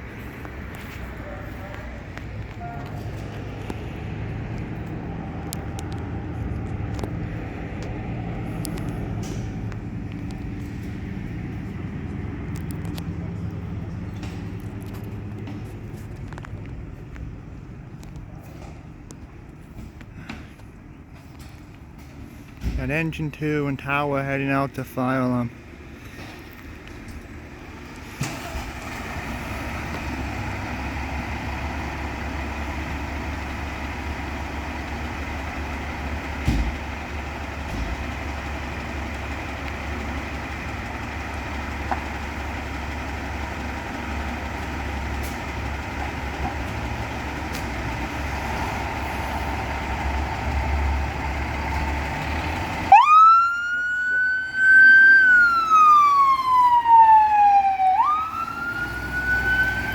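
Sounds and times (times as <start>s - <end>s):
fire truck engine rumbling: 0.0s - 59.9s
siren wailing: 52.9s - 59.9s.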